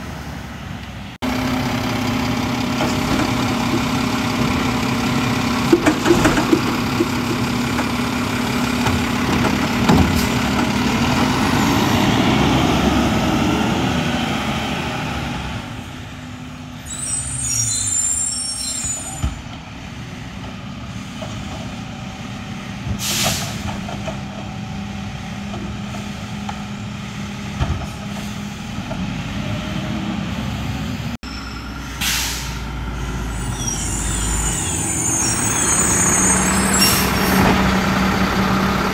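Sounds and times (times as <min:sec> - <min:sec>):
diesel truck engine revving: 0:01.2 - 0:17.1, 0:24.6 - 0:38.9
air brake hiss: 0:23.0 - 0:23.7, 0:31.8 - 0:37.5.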